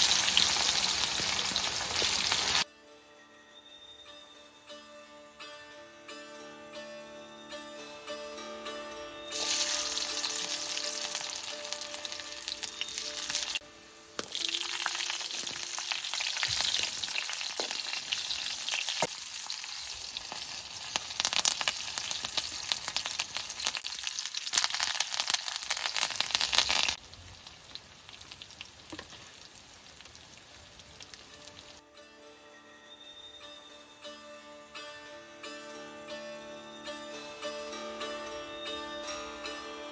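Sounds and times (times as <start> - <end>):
food sizzling in hot oil: 0.0 - 2.6, 9.3 - 13.6, 14.2 - 31.8.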